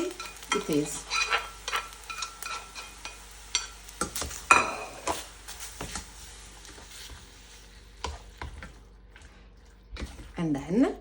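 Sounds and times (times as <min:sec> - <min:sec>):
metal utensils clinking on pan: 0:00.0 - 0:05.2.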